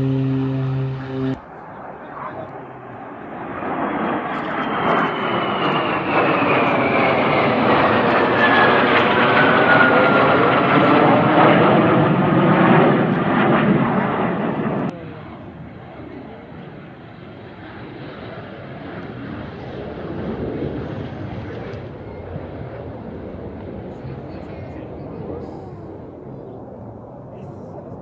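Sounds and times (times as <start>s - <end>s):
high engine whine: 0.0s - 1.5s
jet aircraft passing overhead: 0.0s - 28.0s.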